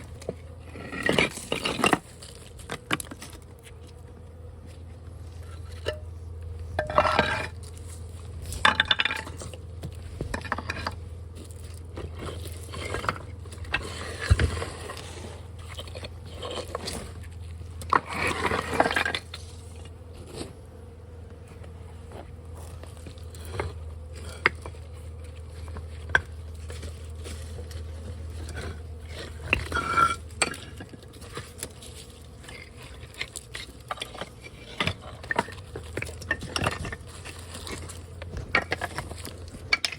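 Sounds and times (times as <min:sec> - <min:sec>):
steady low hum: 0:00.0 - 0:39.9
tool scraping and crunching: 0:00.0 - 0:39.9.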